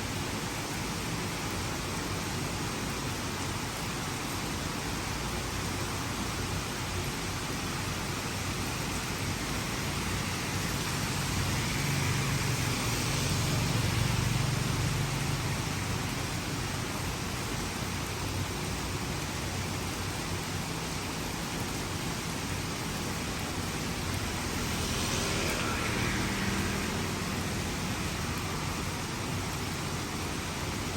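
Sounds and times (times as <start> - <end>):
heavy rain hissing: 0.0 - 30.9
vehicle passing: 9.5 - 15.8, 24.0 - 29.9.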